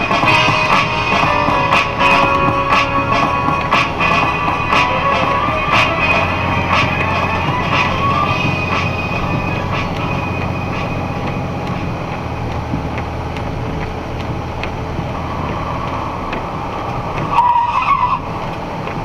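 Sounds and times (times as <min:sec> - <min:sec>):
music from car stereo: 0:00.0 - 0:12.1
truck engine and road rumble: 0:00.0 - 0:19.0.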